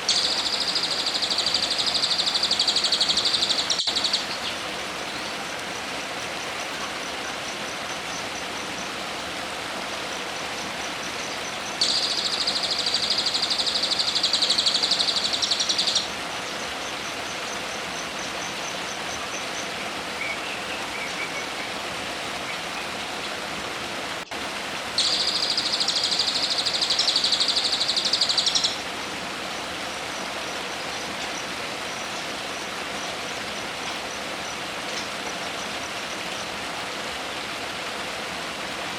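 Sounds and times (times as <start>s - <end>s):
songbird buzzing trills: 0.0s - 5.6s
steady hiss: 0.0s - 38.9s.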